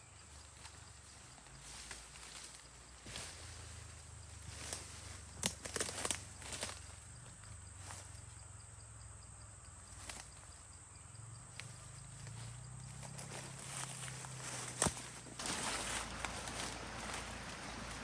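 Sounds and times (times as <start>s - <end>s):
rustles on forest floor: 0.0s - 8.4s, 9.8s - 18.0s.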